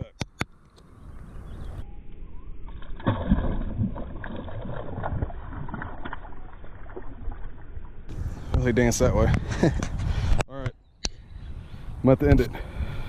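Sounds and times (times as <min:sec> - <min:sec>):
water sloshing and splashing: 0:02.7 - 0:08.1.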